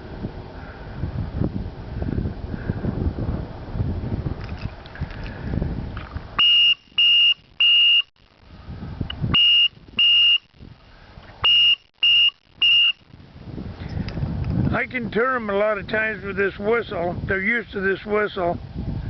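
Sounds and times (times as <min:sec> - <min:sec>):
high-pitched whistle blasts: 0:06.4 - 0:08.1, 0:09.3 - 0:10.5, 0:11.4 - 0:13.1.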